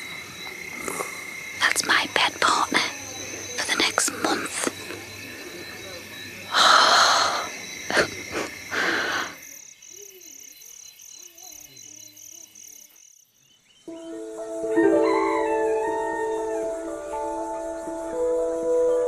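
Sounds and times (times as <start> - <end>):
night insects chirping: 0.0 - 19.0
loud breathy noise bursts: 6.5 - 9.4
music: 13.9 - 19.0.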